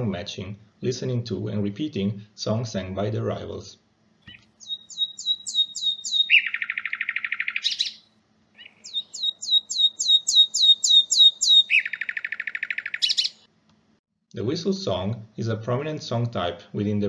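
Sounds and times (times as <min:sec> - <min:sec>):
nightingale singing: 0:04.3 - 0:13.5.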